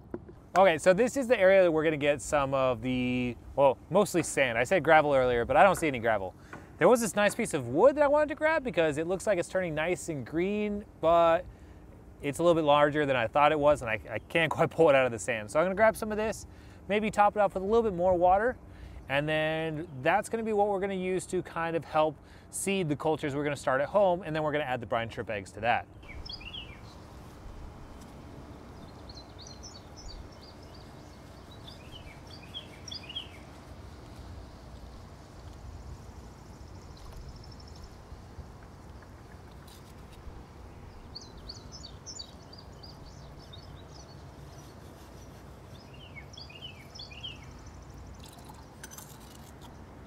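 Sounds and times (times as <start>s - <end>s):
songbird singing: 25.8s - 50.0s.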